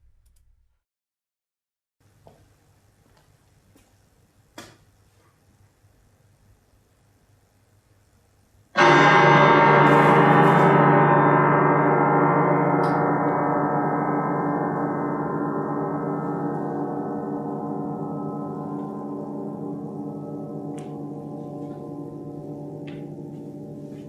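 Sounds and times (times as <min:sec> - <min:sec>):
gong ringing: 0:08.8 - 0:24.0.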